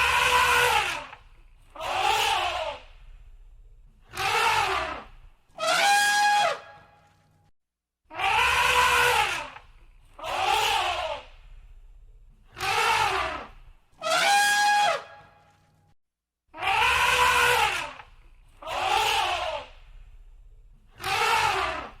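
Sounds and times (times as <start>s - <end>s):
elephant trumpeting: 0.0s - 3.0s, 4.1s - 7.0s, 8.1s - 9.6s, 12.5s - 15.3s, 16.6s - 20.0s, 21.0s - 22.0s.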